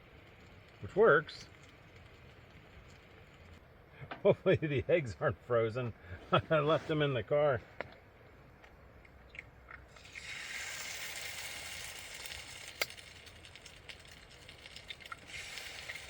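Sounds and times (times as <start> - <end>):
food sizzling in a frying pan: 9.9 - 16.0.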